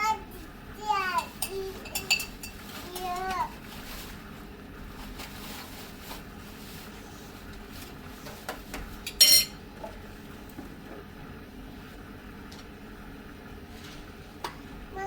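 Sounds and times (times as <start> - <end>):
sharp ringing clink: 9.2 - 9.5.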